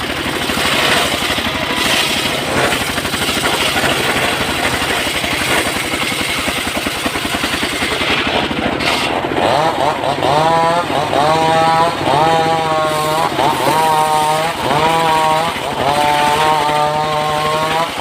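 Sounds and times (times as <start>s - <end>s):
engine-powered wood saw running: 0.0s - 18.0s.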